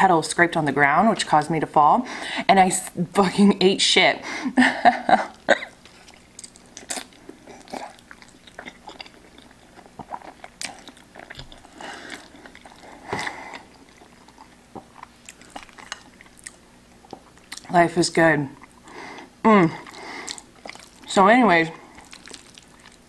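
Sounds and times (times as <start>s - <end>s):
person chewing food: 5.2s - 17.9s, 18.5s - 23.0s.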